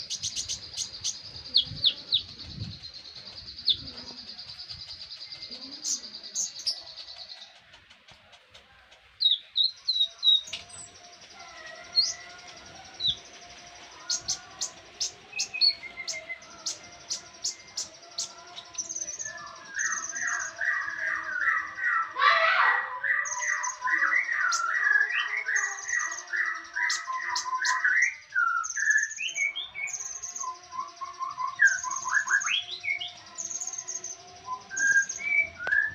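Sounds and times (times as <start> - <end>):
bird ticking notes: 0.0 - 20.6
sunbird song: 0.0 - 35.9.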